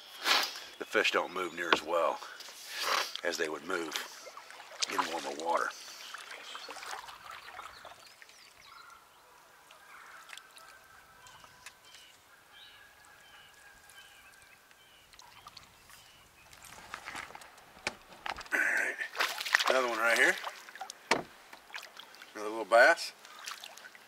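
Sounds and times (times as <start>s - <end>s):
distant bird calls: 0.0s - 24.0s
clicks and rustles: 16.5s - 18.6s.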